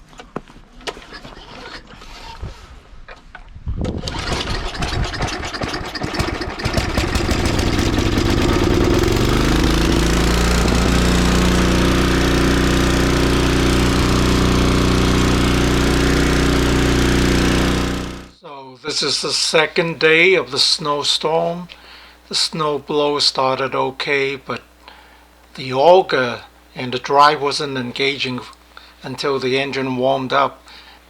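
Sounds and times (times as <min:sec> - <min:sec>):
snowblower engine starting: 0:03.8 - 0:18.4.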